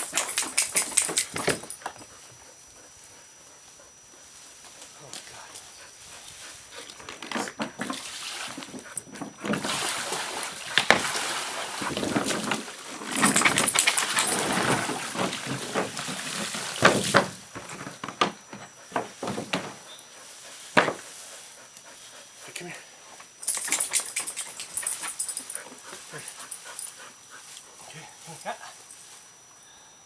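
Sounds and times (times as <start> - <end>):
water splashing and sloshing: 7.7 - 17.7.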